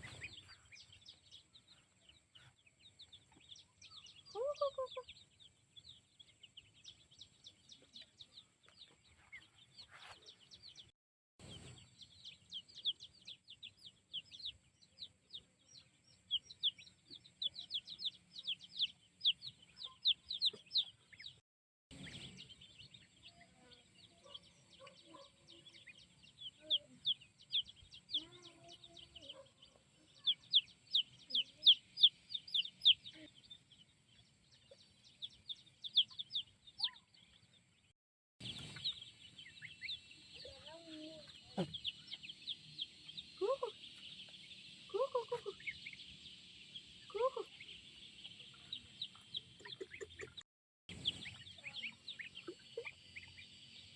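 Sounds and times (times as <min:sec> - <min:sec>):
chicks peeping: 0:00.0 - 0:37.8, 0:38.4 - 0:53.9
low clucks: 0:41.4 - 0:42.0.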